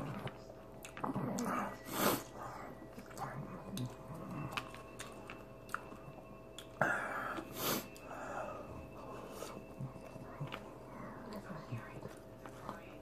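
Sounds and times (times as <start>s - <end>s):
person chewing: 0.0s - 8.1s.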